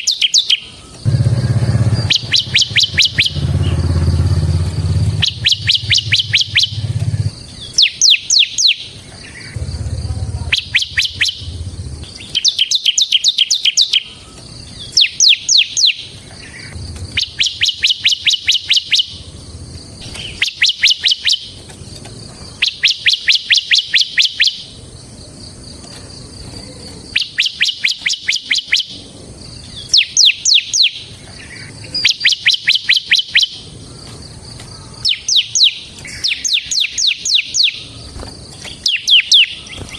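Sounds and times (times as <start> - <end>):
bird sharp chip notes: 0.0 - 7.2, 9.6 - 14.1
faint low rumble: 1.0 - 7.6, 9.2 - 12.3, 16.4 - 17.4.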